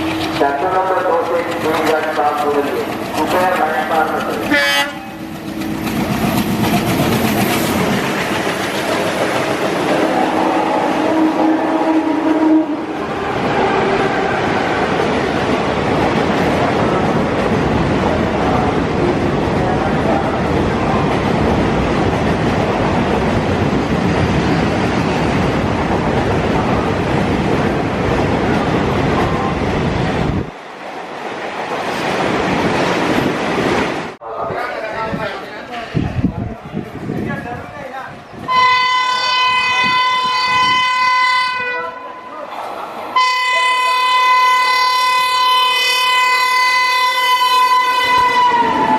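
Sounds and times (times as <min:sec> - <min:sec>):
train rushing past: 0:00.0 - 0:48.9
wind noise: 0:13.0 - 0:30.6, 0:31.2 - 0:38.6, 0:39.5 - 0:41.0.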